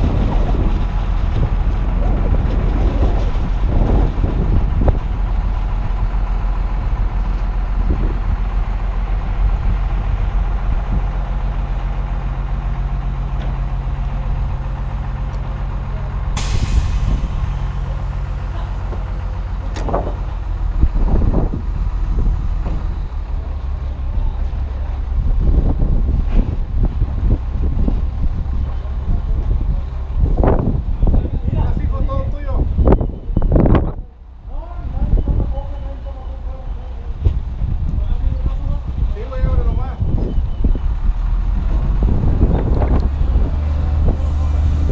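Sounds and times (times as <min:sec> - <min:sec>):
heavy truck engine running: 0:00.0 - 0:44.9
wind rumbling on microphone: 0:00.0 - 0:44.9
air brake hiss: 0:16.4 - 0:17.7.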